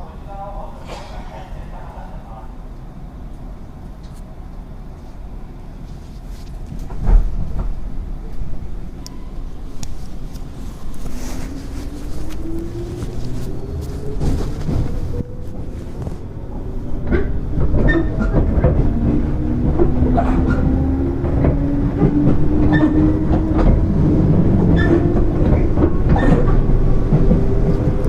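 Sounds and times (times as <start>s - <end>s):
wheels clacking over rail joints: 17.0s - 28.0s.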